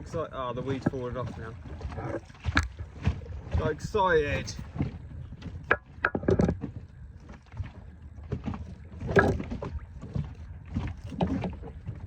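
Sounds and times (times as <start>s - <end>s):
knocks and clicks of tackle: 0.1s - 3.7s, 4.7s - 7.7s, 8.3s - 12.0s.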